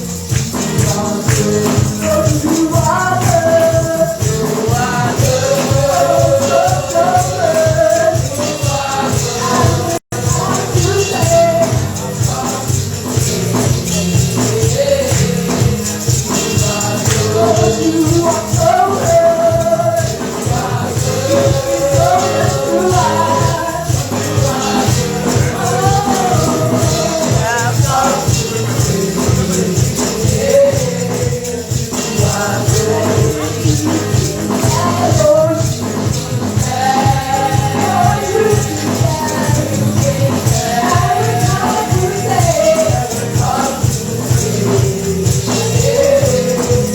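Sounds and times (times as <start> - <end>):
gospel music with beat: 0.0 - 46.9
tambourine: 0.0 - 46.9
voices singing: 0.0 - 46.9.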